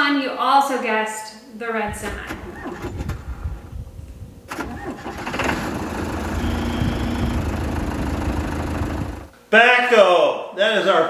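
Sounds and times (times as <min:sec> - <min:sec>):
backhoe engine cranking and running: 0:01.9 - 0:09.3.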